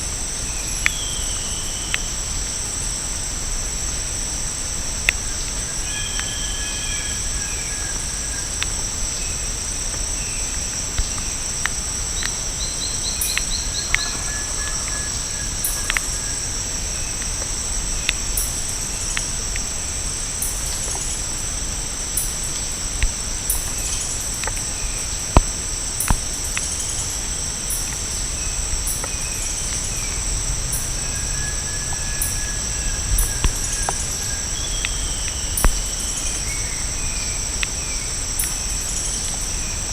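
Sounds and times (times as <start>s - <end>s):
shrill insect chorus: 0.0s - 39.9s.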